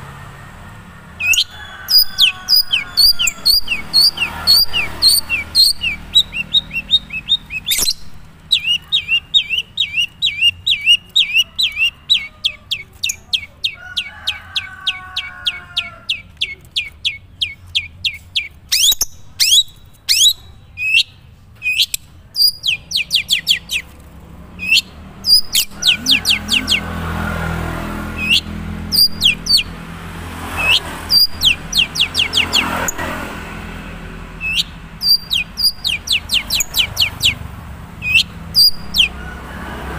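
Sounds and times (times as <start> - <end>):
bird singing sharp chirps: 1.2 - 13.8, 16.0 - 23.9, 24.6 - 27.0, 28.2 - 29.7, 30.6 - 33.1, 34.4 - 37.4, 38.0 - 39.2.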